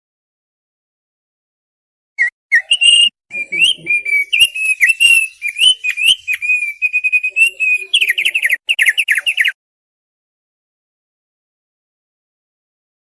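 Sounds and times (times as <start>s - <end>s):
bird singing whistled chatter: 2.2s - 9.6s.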